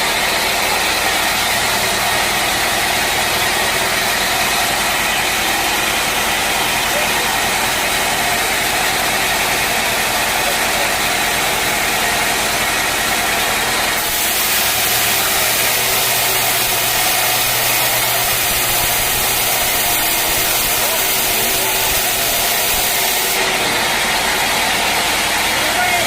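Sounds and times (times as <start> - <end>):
sawmill machinery hiss: 0.0 - 25.8
motor hum: 11.0 - 26.0.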